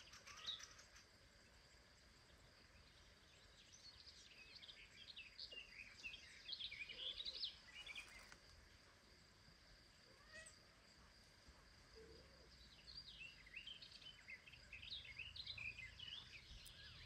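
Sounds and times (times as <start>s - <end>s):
small birds chirping: 0.0s - 8.6s, 12.0s - 17.0s
high-pitched insect hum: 0.0s - 17.0s.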